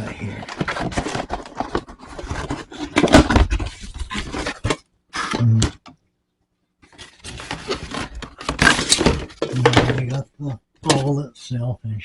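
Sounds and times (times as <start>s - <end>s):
packaging rustling: 0.1s - 4.8s.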